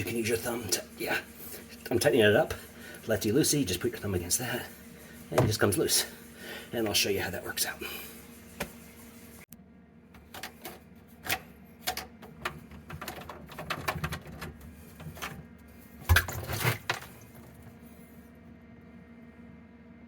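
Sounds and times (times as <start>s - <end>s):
plastic pipe parts clicking: 10.2s - 15.4s.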